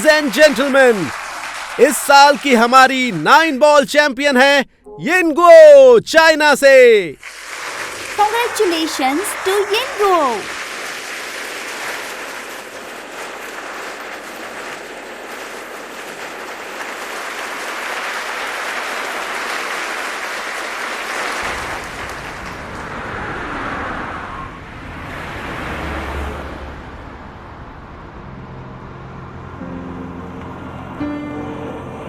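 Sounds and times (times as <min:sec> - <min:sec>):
audience applauding: 0:00.0 - 0:04.1, 0:07.2 - 0:23.0.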